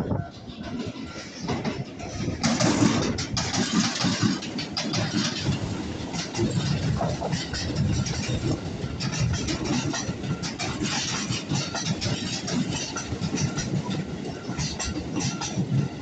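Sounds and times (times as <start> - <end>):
train rumble: 0.0 - 16.0
wheels clacking over rails: 0.0 - 16.0.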